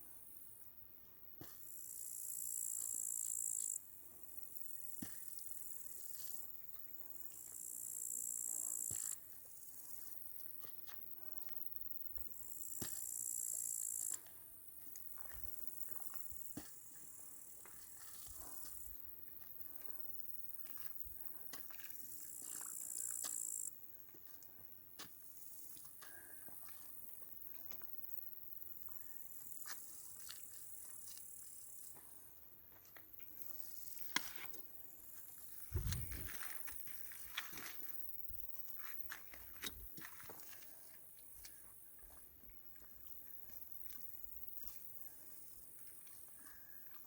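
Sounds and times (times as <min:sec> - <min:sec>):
crickets trilling: 0:01.7 - 0:06.6, 0:07.3 - 0:10.4, 0:11.6 - 0:14.2, 0:22.1 - 0:23.8, 0:35.1 - 0:43.2.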